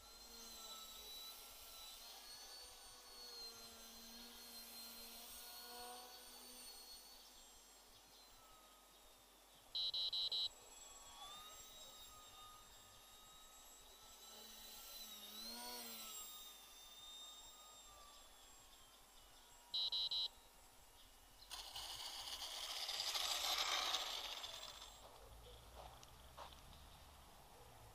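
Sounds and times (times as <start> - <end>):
drone motors whining: 0.0 - 27.6
quick beeps: 9.8 - 10.5, 19.8 - 20.4.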